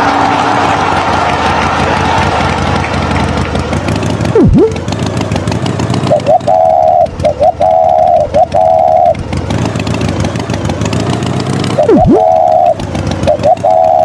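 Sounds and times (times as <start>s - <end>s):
long horn-like beeps: 0.0s - 2.6s, 4.2s - 4.8s, 6.1s - 9.2s, 11.8s - 12.8s
cartoon tractor engine running: 0.0s - 14.0s
swooping sound effect: 4.2s - 4.9s, 11.8s - 14.0s.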